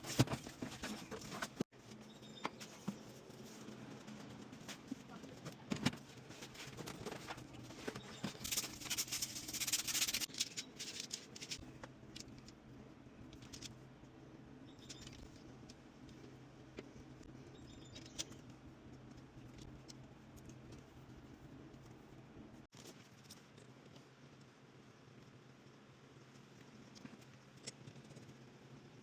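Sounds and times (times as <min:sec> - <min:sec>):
steady low hum: 0:00.0 - 0:22.7.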